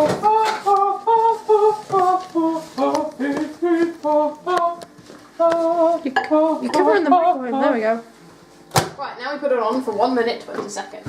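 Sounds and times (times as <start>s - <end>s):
person singing: 0.0s - 7.8s.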